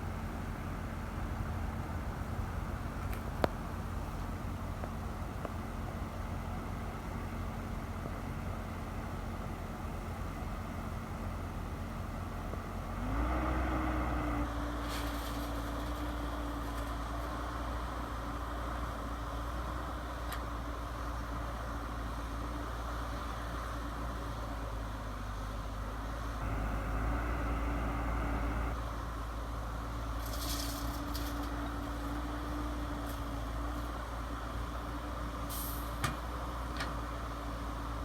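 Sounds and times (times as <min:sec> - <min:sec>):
model truck motor humming: 0:26.4 - 0:28.8
short air hisses: 0:35.5 - 0:36.0.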